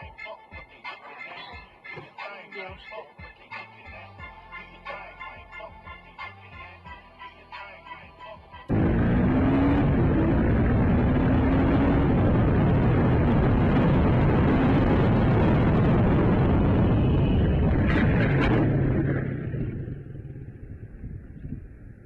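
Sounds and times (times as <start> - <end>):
faint engine note: 8.7 - 21.6
car road noise: 8.7 - 22.0.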